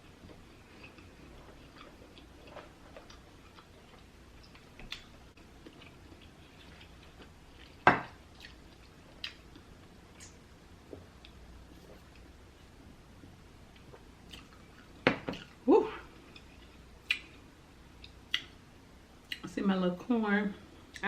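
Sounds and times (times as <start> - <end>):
eating clicks and smacks: 17.0 - 17.4.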